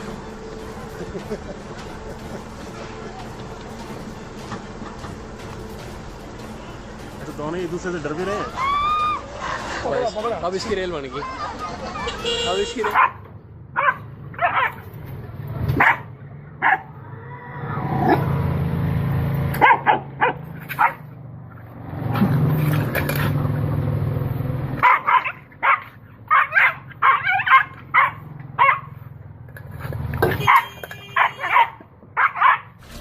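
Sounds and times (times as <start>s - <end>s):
dog barking and yipping: 12.8s - 14.8s, 15.8s - 16.9s, 19.6s - 21.1s, 24.8s - 29.0s, 30.4s - 32.8s.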